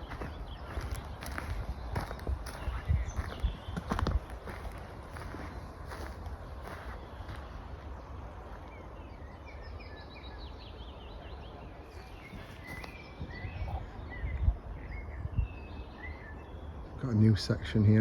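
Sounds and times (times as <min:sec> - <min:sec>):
wind rumble on microphone: 0:00.0 - 0:08.4, 0:12.0 - 0:17.0
small birds chirping: 0:00.0 - 0:18.0.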